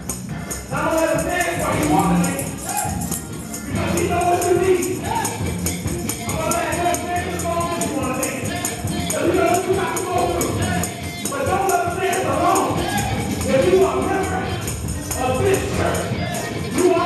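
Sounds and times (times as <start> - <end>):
tambourine jingling: 0.0 - 17.0.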